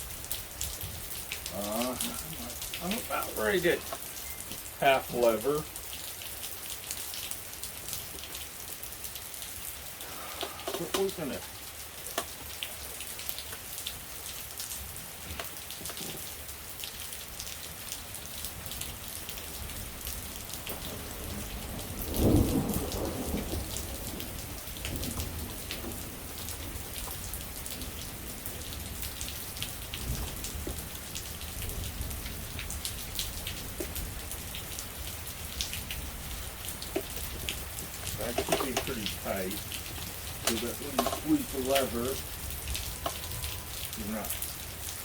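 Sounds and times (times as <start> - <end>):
rain pattering: 0.0 - 45.0
thunder rumbling: 19.6 - 44.3.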